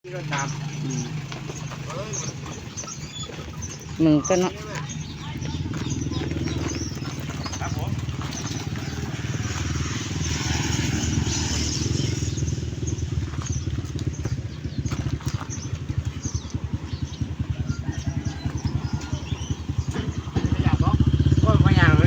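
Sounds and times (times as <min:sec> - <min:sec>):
motor engine throbbing: 0:00.1 - 0:22.0
knocks and clatters: 0:18.4 - 0:20.8.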